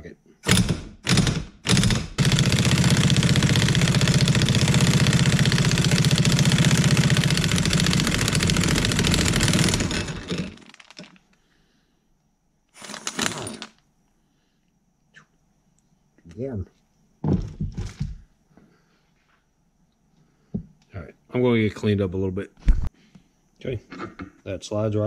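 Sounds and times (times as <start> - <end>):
impact wrench rattling: 0.4 - 11.3, 12.8 - 13.8.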